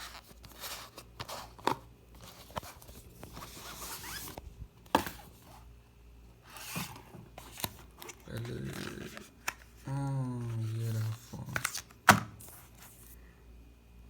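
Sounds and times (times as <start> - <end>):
box rustling and clicking: 6.5 - 9.8.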